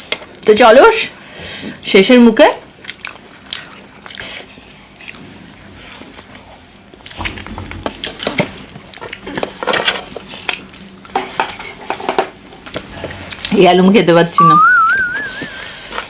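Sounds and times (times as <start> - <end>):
wet chewing and mouth noises: 2.8 - 11.1, 12.5 - 13.6.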